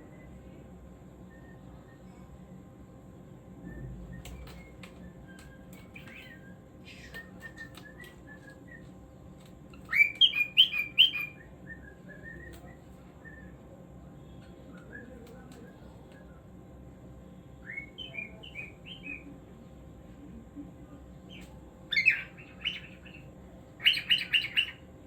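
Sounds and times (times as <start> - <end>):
cockatiel whistling and warbling: 3.7 - 8.9, 9.8 - 12.6, 23.8 - 24.8.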